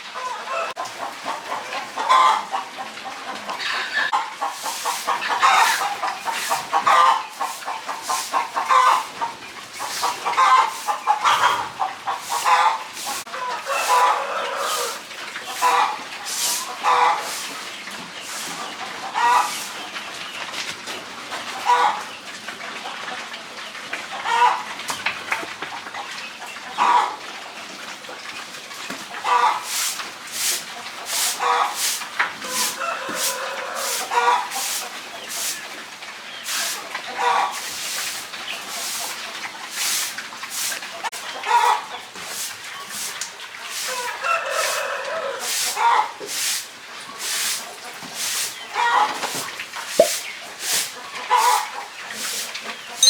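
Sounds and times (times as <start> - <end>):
farm animal calling: 0.2 - 17.5
short rustling strokes: 4.5 - 9.1
rooster crowing: 13.6 - 15.0
short calls: 50.0 - 50.2.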